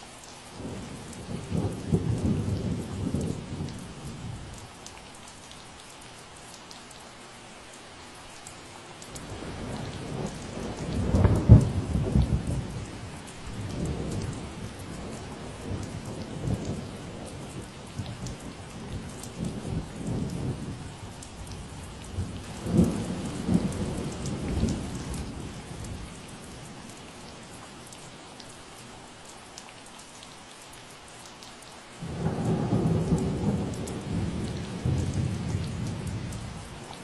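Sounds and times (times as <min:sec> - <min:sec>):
steady rain falling: 0:00.0 - 0:37.0
rumbling thunder: 0:00.6 - 0:04.4, 0:09.2 - 0:26.7, 0:32.0 - 0:36.9.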